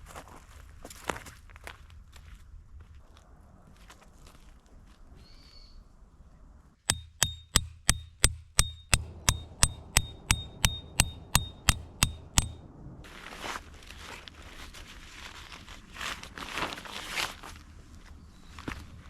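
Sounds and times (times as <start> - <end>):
hammer striking metal tent peg: 6.9 - 12.6.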